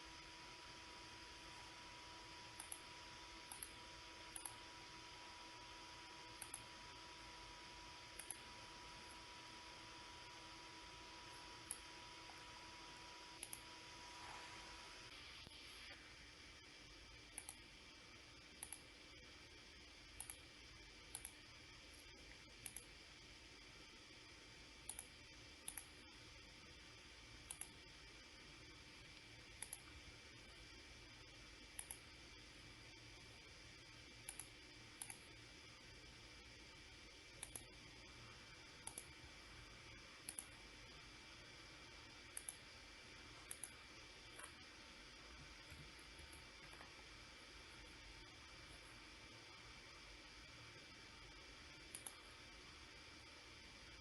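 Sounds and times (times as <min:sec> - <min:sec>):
faint steady hiss: 0:00.0 - 0:54.0
computer mouse clicking: 0:02.5 - 0:04.7, 0:06.3 - 0:06.9, 0:08.1 - 0:09.2, 0:11.3 - 0:12.5, 0:13.3 - 0:14.8, 0:17.3 - 0:17.6, 0:18.5 - 0:18.9, 0:20.2 - 0:21.5, 0:22.5 - 0:23.0, 0:24.8 - 0:26.1, 0:27.4 - 0:27.9, 0:29.1 - 0:30.0, 0:31.6 - 0:32.2, 0:34.2 - 0:35.4, 0:37.3 - 0:37.9, 0:38.8 - 0:39.2, 0:40.2 - 0:40.6, 0:42.1 - 0:42.8, 0:43.4 - 0:44.7, 0:51.8 - 0:52.3.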